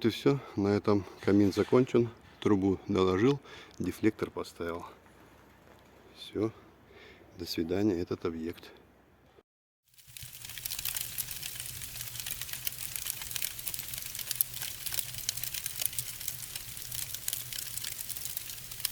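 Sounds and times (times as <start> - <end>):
dense crackling clicks: 10.0 - 18.9.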